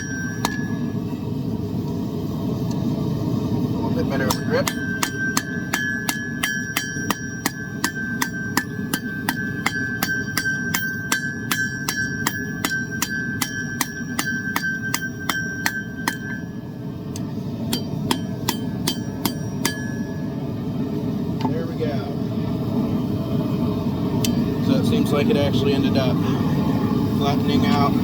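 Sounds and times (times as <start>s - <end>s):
anvil ringing: 0.0s - 1.1s, 4.2s - 20.4s
hammer striking hot steel: 0.0s - 1.2s, 4.1s - 20.6s, 24.2s - 24.5s.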